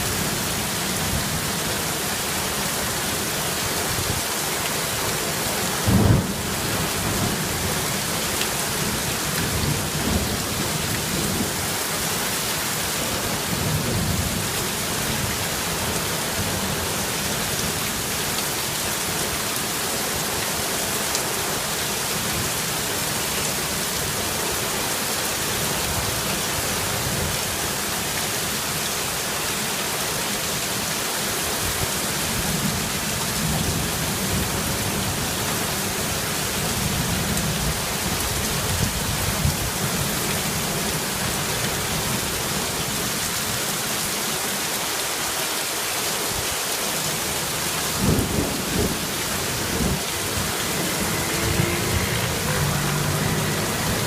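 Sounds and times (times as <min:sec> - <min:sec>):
heavy rain falling: 0:00.0 - 0:54.0
thunder rumbling: 0:05.8 - 0:07.7, 0:48.0 - 0:54.0.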